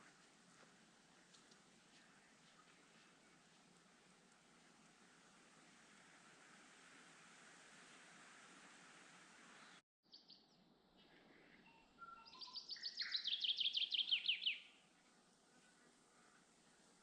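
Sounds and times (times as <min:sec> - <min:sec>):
steady hiss: 0:00.0 - 0:09.8, 0:14.8 - 0:17.0
songbird singing: 0:09.5 - 0:15.8.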